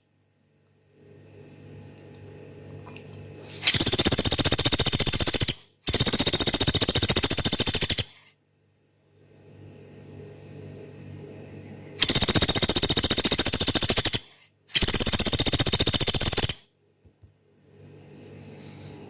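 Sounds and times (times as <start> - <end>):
faint low hum: 0.0 - 19.0
woodpecker rattling call: 3.7 - 8.2, 12.0 - 16.6.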